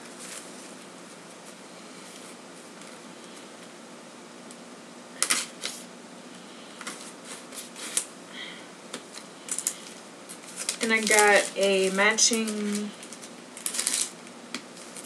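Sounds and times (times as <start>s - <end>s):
packaging clicks and rustles: 8.9s - 15.0s.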